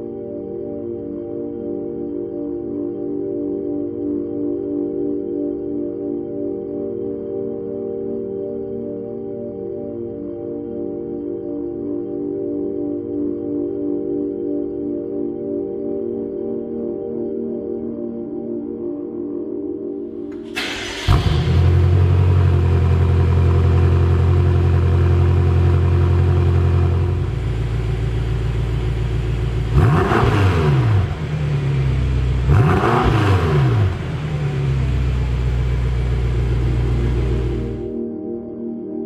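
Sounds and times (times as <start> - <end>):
engine cranking: 20.4 - 21.7
engine throttle blips: 20.4 - 37.9
engine idling: 20.6 - 37.9.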